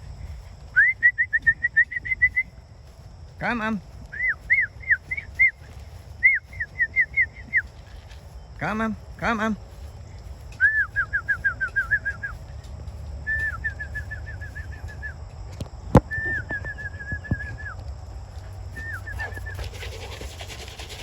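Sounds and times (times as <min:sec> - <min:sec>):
small bird singing: 0:03.8 - 0:15.2, 0:16.0 - 0:17.8.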